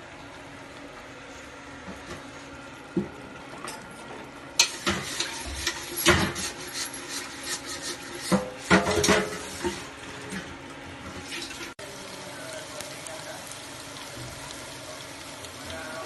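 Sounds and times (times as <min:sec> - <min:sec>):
metal pots clattering and scraping: 0:03.0 - 0:11.8.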